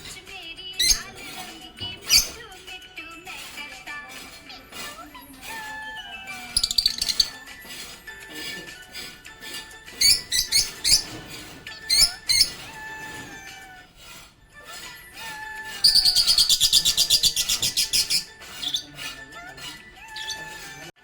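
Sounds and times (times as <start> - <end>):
budgies chirping: 0.0 - 20.9
background music: 0.0 - 21.0
rapid chattering trill: 0.6 - 11.1, 15.8 - 20.4.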